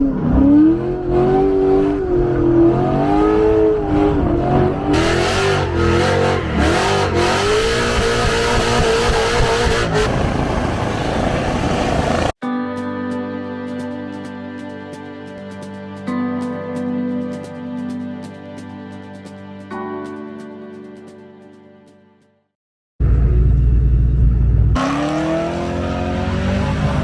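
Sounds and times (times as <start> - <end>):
car engine revving: 0.0 - 12.3, 23.0 - 27.0.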